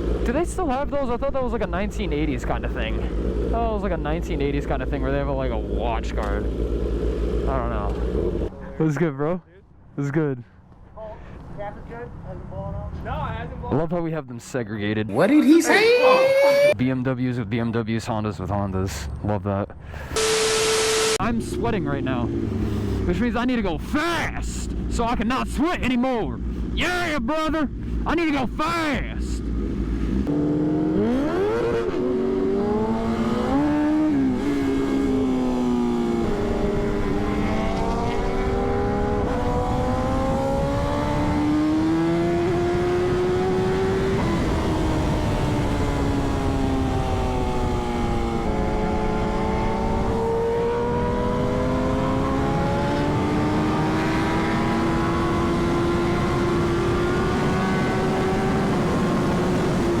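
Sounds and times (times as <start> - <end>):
motorcycle engine accelerating: 0.0 - 0.8, 1.7 - 8.6, 20.2 - 23.9, 29.4 - 60.0.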